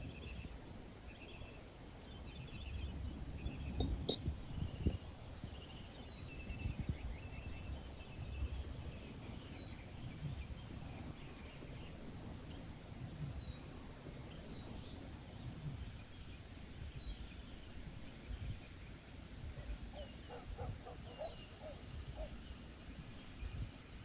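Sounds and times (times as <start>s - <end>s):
birds chattering: 19.7s - 22.4s
birds whistling: 20.0s - 22.4s.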